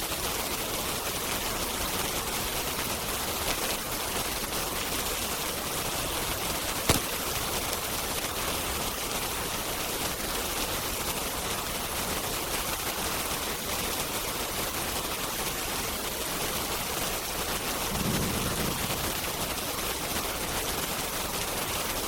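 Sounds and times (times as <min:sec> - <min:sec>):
rain hissing: 0:00.0 - 0:22.0
wood fire crackling: 0:01.0 - 0:10.3.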